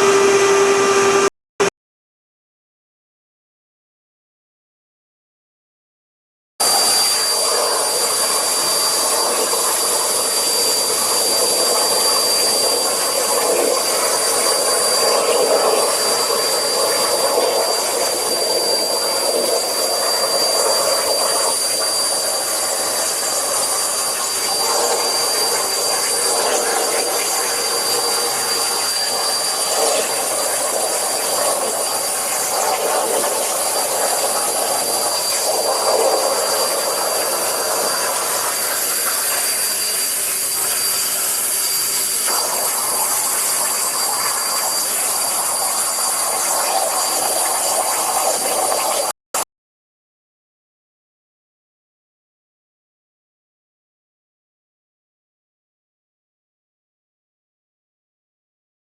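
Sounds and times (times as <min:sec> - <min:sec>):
high-pitched machine whine: 0:00.0 - 0:01.7, 0:06.6 - 0:49.5
machine hissing: 0:06.6 - 0:49.1.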